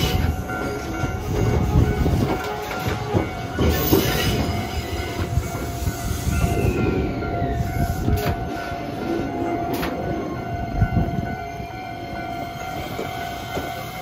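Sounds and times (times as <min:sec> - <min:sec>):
train wheels rumbling on rail: 0:00.0 - 0:14.0
wheel squeal: 0:03.6 - 0:08.7.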